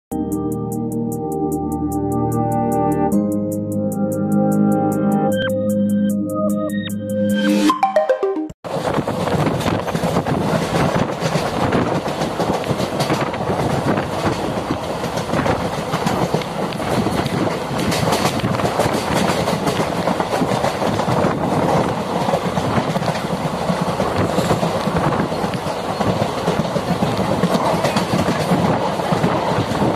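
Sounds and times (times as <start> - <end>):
train wheels clattering on rails: 8.7 - 29.9.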